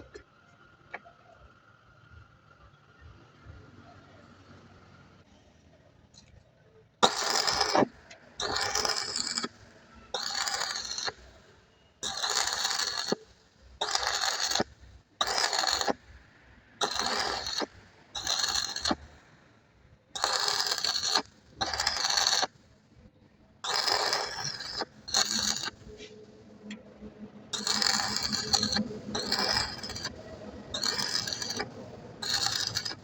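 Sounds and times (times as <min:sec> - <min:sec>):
metal scraping strokes: 0:07.0 - 0:16.2, 0:16.8 - 0:19.2, 0:20.2 - 0:22.6, 0:23.6 - 0:33.0.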